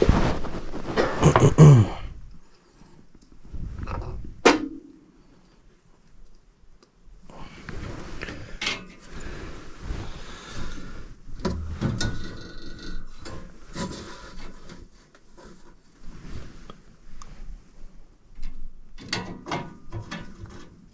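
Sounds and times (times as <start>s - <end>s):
metal clanks and knocks: 11.4s - 14.0s, 19.0s - 20.7s
hands scraping metal parts: 11.5s - 15.8s.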